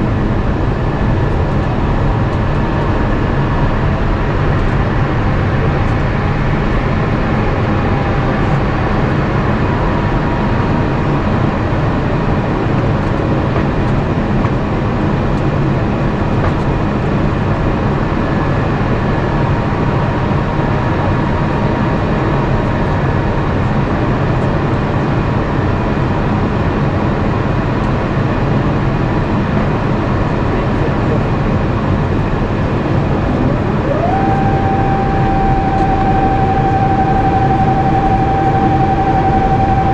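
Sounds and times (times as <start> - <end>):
rising whine: 0.0 - 14.6, 32.1 - 39.9
airplane cabin noise: 0.0 - 39.9.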